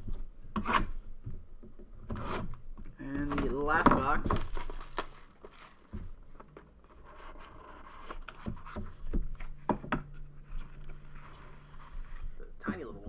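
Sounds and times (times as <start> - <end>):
faint room hum: 0.0 - 13.0
cardboard box scraping and rustling: 10.4 - 12.4.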